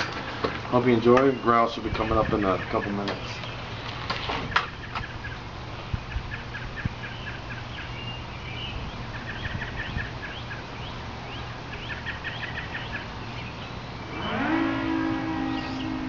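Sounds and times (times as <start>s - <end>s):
small songbirds chirping: 4.5s - 14.5s.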